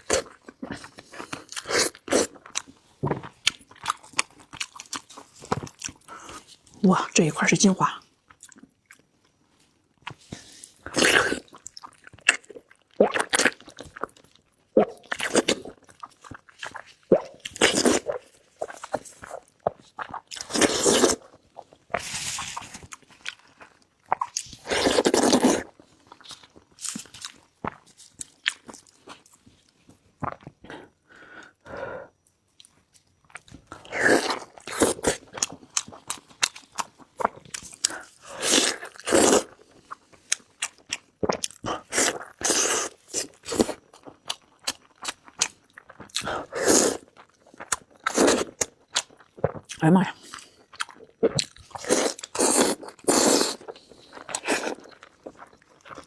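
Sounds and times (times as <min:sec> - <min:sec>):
chewing and biting meat: 0:00.0 - 0:06.5, 0:33.3 - 0:56.0.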